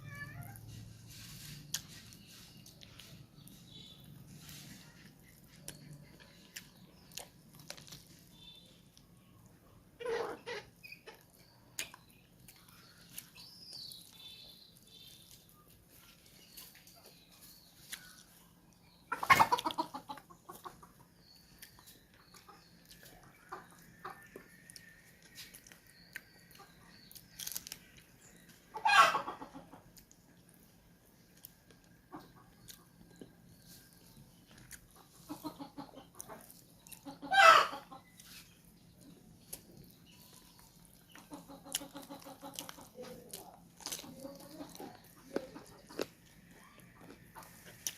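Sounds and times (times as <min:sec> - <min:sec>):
chewing and mouth clicks: 0:01.7 - 0:03.5, 0:05.0 - 0:09.1, 0:11.1 - 0:14.4, 0:21.2 - 0:23.9, 0:24.5 - 0:28.1, 0:31.3 - 0:37.1, 0:39.0 - 0:47.9
chickens clucking: 0:09.1 - 0:14.2, 0:15.3 - 0:47.9.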